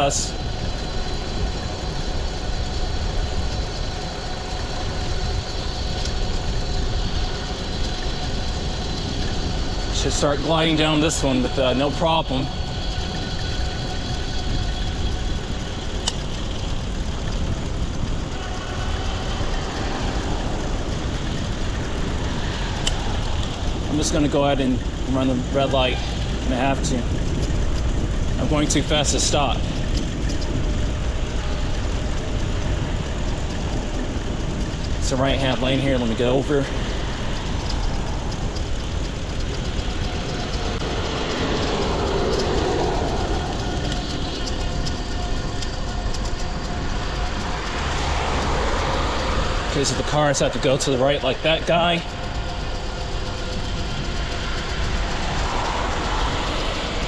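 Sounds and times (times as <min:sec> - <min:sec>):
bicycle road noise: 0:00.0 - 0:57.0
faint steady whine: 0:00.0 - 0:57.0
wind rushing over microphone: 0:00.0 - 0:57.0.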